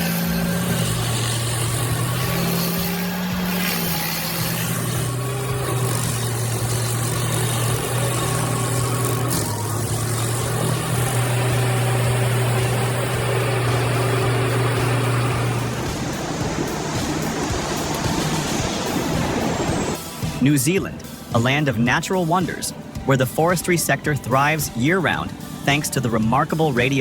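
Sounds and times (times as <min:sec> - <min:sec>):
stump grinder engine running: 0:00.0 - 0:20.0.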